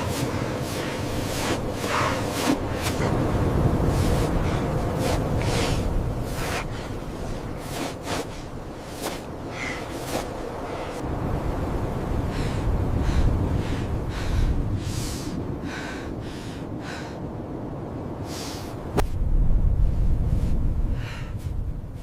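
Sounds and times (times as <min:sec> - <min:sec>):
low rumble: 0:18.9 - 0:22.0
person gasping breaths: 0:20.9 - 0:21.5.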